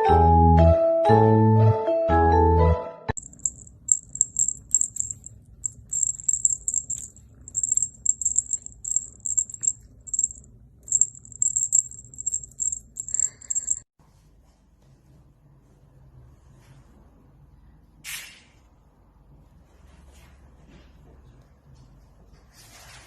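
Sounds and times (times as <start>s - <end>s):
small jingle bell jingling: 3.2s - 13.9s.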